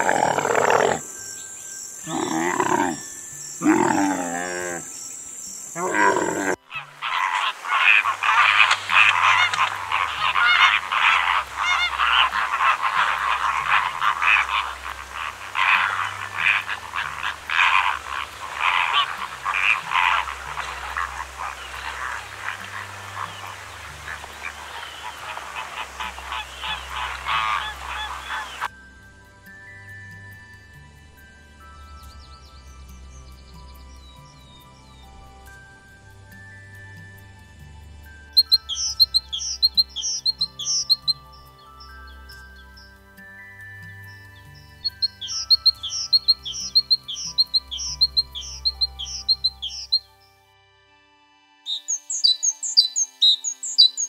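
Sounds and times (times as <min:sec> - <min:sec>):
camel calling: 0:00.0 - 0:01.2, 0:02.0 - 0:05.0, 0:05.7 - 0:28.7
flamingo flock honking: 0:05.7 - 0:28.7.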